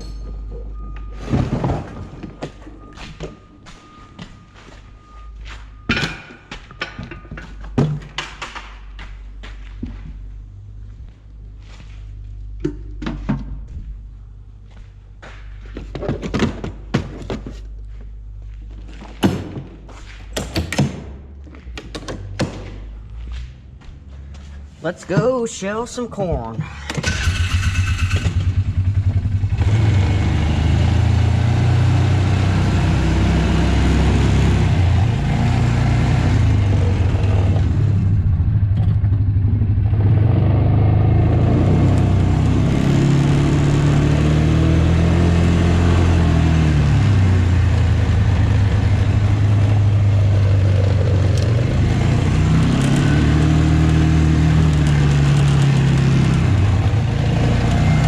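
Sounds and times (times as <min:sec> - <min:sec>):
tractor diesel engine revving: 0:25.5 - 0:58.0.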